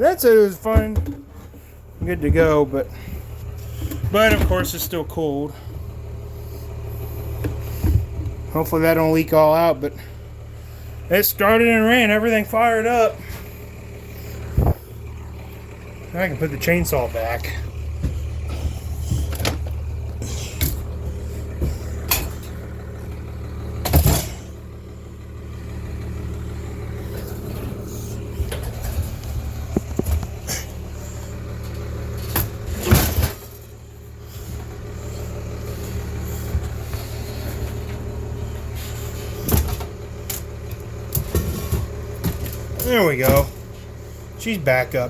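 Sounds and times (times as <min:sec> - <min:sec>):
knocks and clunks: 0:00.0 - 0:06.2, 0:07.0 - 0:08.6, 0:14.2 - 0:24.6, 0:26.6 - 0:44.0
steady low hum: 0:00.0 - 0:45.0.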